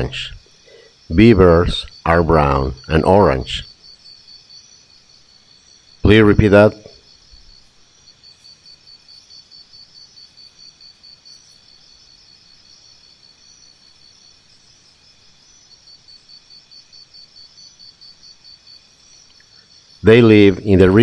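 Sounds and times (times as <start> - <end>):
insect chirping: 0.0 - 21.0.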